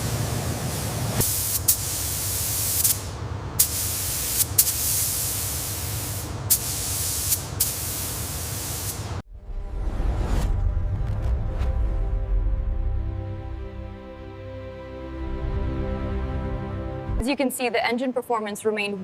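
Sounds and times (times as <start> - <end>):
hissing spray: 0.0 - 9.2.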